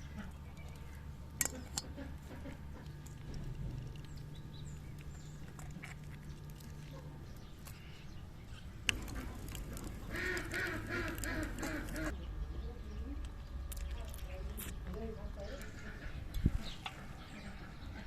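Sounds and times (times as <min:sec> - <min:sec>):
low steady hum: 0:00.0 - 0:18.0
farm animal calling: 0:09.0 - 0:12.3.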